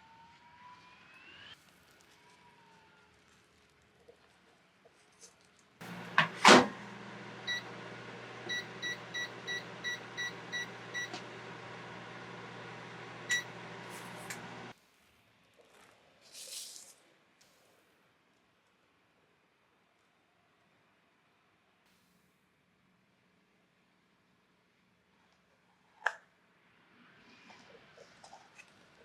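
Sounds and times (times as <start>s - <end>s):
loud clunk: 5.8s - 6.9s
microwave oven humming: 5.8s - 14.7s
keypad beeps: 7.5s - 7.7s, 8.5s - 11.2s, 13.3s - 13.6s
click: 14.2s - 14.6s.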